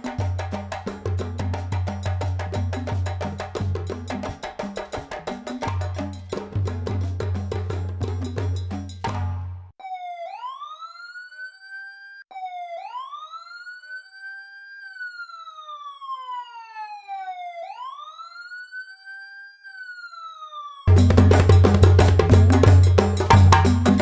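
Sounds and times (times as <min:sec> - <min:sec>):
siren wailing: 0:09.8 - 0:20.9.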